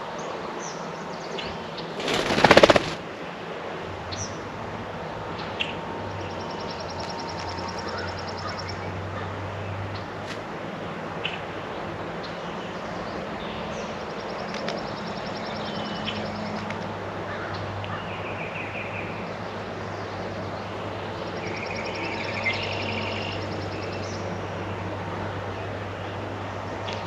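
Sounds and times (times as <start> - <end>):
songbirds singing: 5.4 - 10.1, 11.2 - 16.7, 17.3 - 27.0.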